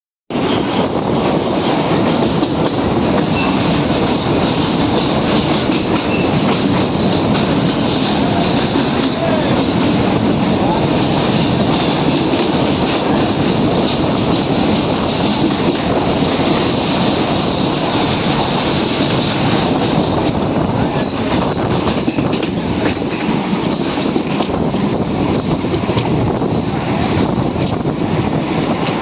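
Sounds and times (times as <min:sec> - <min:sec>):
train wheels rumbling on rails: 0:00.3 - 0:29.0.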